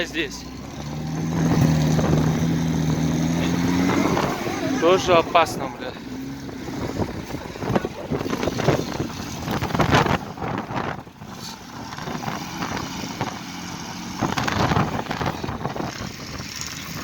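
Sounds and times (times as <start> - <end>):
vehicle engines running: 0.0 - 17.0
wind buffeting microphone: 0.9 - 17.0.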